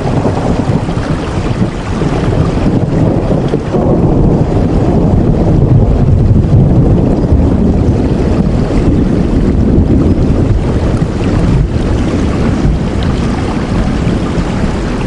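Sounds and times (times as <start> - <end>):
deep rumble: 0.0 - 15.0
heavy rain: 0.0 - 15.0.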